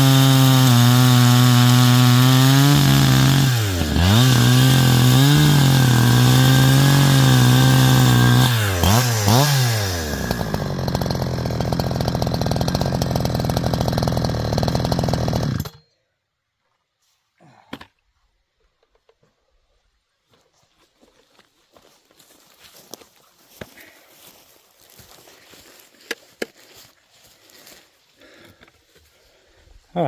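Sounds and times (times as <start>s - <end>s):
chainsaw cutting log: 0.0s - 15.8s
chainsaw idling roughly: 0.0s - 15.8s.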